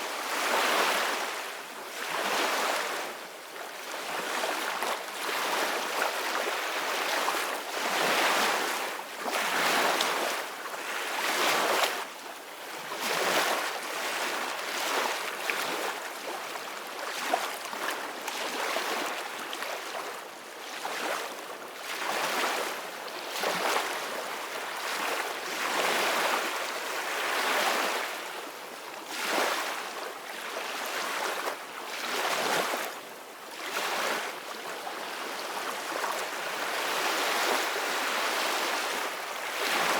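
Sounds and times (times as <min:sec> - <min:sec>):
ocean waves breaking on shore: 0:33.6 - 0:39.9.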